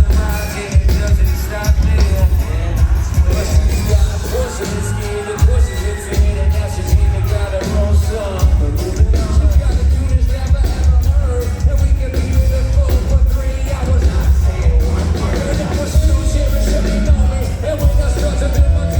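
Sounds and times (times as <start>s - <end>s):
heavy bass and kick drum beat: 0.0s - 18.9s
live band playing pop-rap: 0.0s - 18.9s
person singing: 0.0s - 18.9s.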